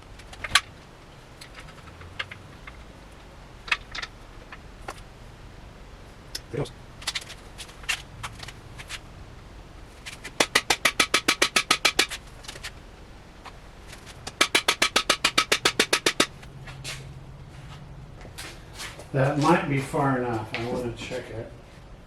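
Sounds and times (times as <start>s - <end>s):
hammer striking metal bar: 10.4s - 12.1s, 14.3s - 16.3s.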